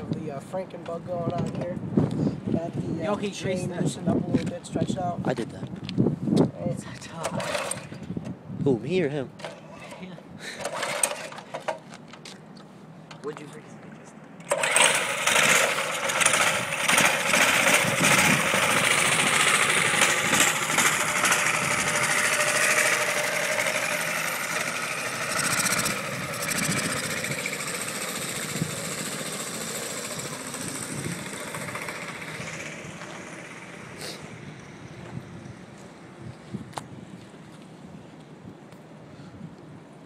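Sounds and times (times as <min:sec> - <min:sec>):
minibike engine at high revs: 0:07.2 - 0:08.0, 0:10.6 - 0:11.4, 0:14.5 - 0:34.9.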